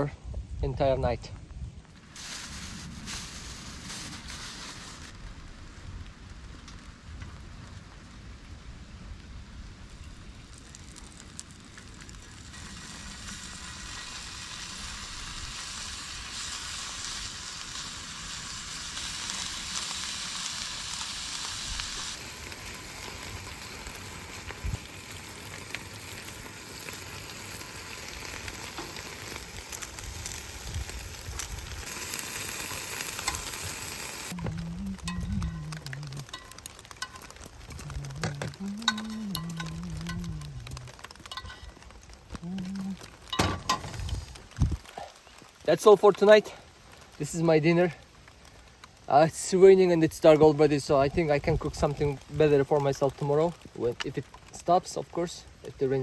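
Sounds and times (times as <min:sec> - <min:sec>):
food sizzling in a pan: 0:02.0 - 0:05.2, 0:10.6 - 0:47.6.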